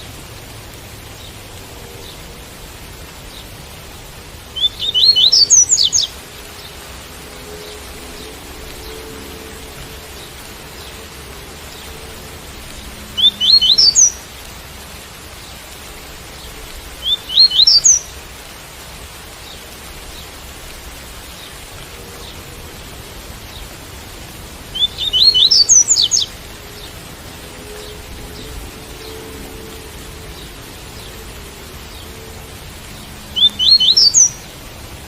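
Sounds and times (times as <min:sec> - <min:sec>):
rain hissing: 0:00.0 - 0:35.0
bird singing whistled notes: 0:04.6 - 0:06.1, 0:13.2 - 0:14.2, 0:17.0 - 0:18.1, 0:24.7 - 0:26.3, 0:33.3 - 0:34.4.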